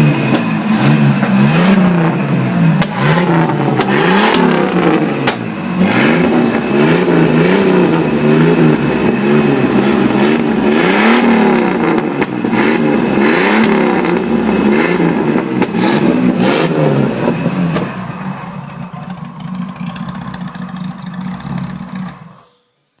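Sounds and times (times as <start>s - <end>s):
car engine revving in blips: 0.0s - 22.3s
car engine idling: 0.0s - 22.4s.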